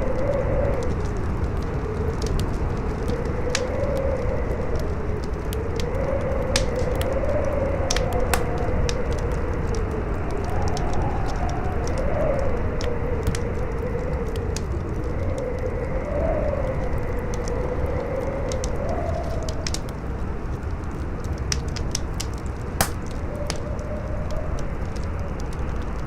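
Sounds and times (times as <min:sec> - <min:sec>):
strong wind howling: 0:00.0 - 0:20.5
campfire crackling and popping: 0:00.0 - 0:26.0.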